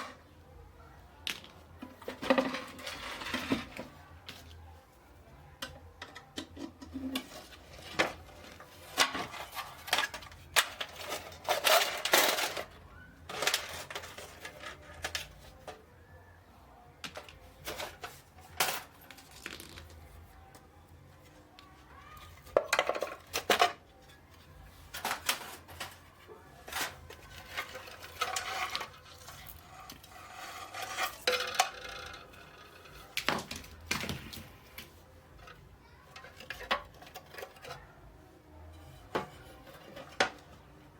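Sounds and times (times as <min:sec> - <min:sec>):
clinks and clatter of small parts: 0:05.6 - 0:15.8, 0:17.0 - 0:20.2, 0:22.0 - 0:38.0, 0:38.7 - 0:40.8.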